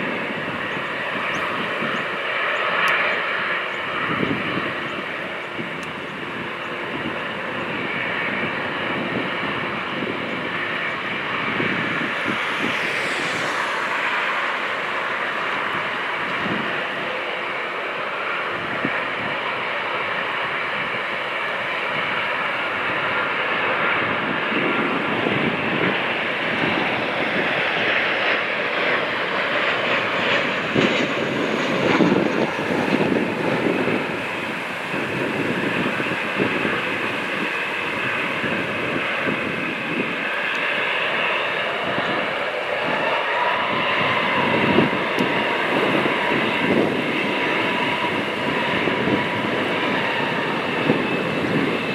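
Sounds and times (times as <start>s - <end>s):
jet engines running: 0.0s - 51.9s
high whining tones: 9.0s - 18.2s.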